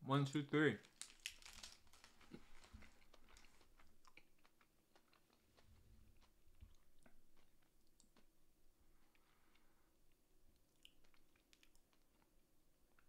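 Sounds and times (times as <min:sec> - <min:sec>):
faint chewing: 0:00.9 - 0:13.0
soft mouth clicks and smacks: 0:02.3 - 0:08.3, 0:10.5 - 0:12.3.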